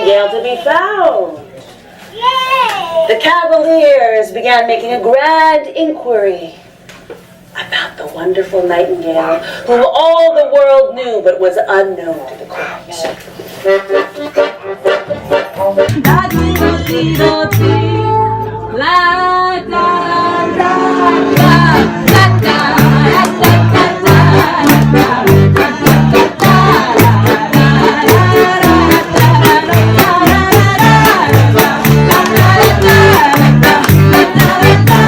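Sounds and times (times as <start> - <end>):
live ensemble music: 13.8 - 18.8, 19.4 - 35.0
bass line: 15.1 - 35.0
person singing: 15.6 - 35.0
drum hits: 21.3 - 35.0.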